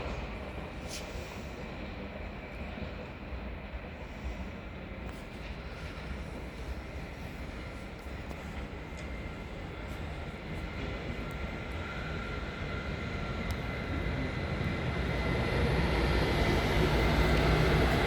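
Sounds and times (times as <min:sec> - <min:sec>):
freight train rumble: 0:00.0 - 0:18.0
locomotive high whine: 0:05.1 - 0:18.0.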